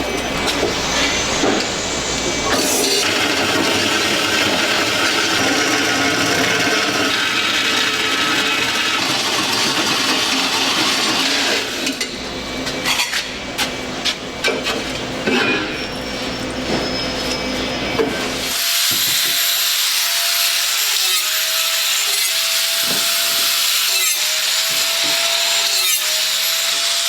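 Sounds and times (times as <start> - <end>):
power tool grinding metal: 2.6 - 11.9, 18.4 - 27.0.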